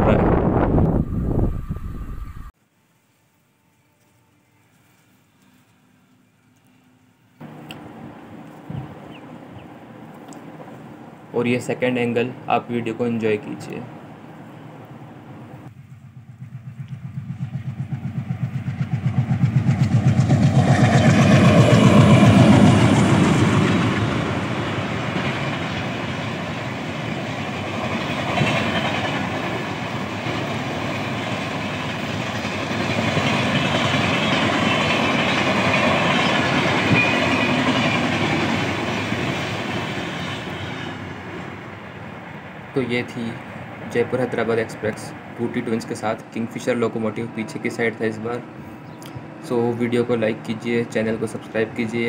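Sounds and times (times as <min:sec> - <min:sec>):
diesel locomotive engine pulsing: 0:00.0 - 0:02.5, 0:05.2 - 0:52.0
train wheels on rails: 0:15.6 - 0:46.8.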